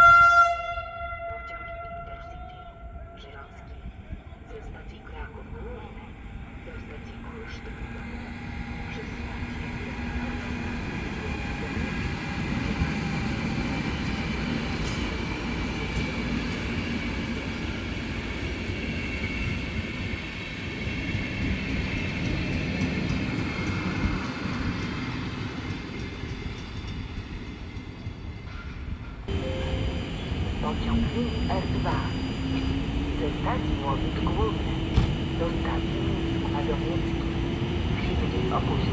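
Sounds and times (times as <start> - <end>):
train wheels rumbling on track: 2.9 - 38.9
faint high whine: 29.3 - 37.2.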